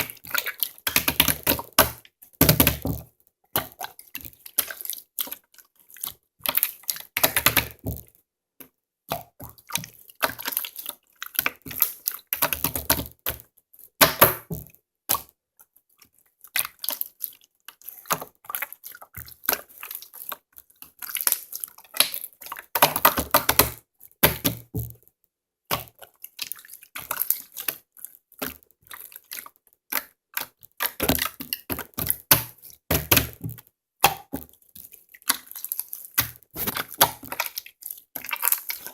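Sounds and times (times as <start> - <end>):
slime squished by hand: 25.7 - 38.9.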